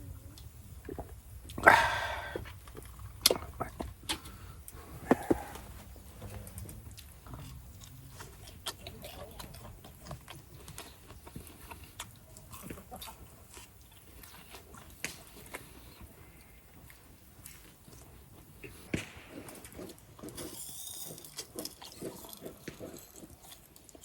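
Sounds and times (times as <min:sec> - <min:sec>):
person chewing food: 0:00.9 - 0:24.0.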